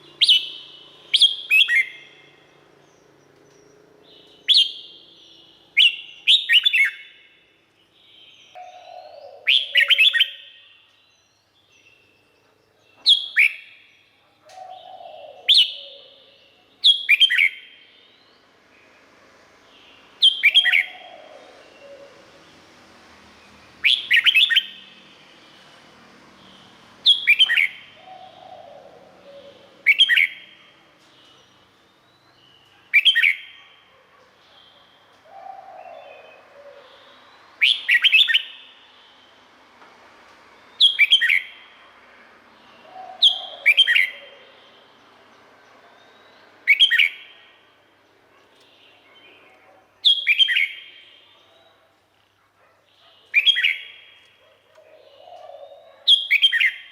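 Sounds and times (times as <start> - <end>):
bird singing whistled phrases: 23.8 - 24.8, 27.1 - 27.8, 29.4 - 30.5, 37.6 - 38.8, 40.8 - 41.5, 46.2 - 47.3, 50.1 - 51.7, 53.3 - 54.1, 56.1 - 56.9.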